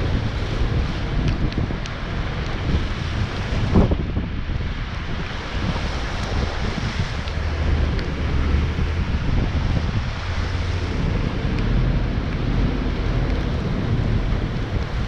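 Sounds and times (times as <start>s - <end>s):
wind on microphone: 0.0s - 15.0s
heavy diesel equipment rumbling: 7.3s - 15.0s.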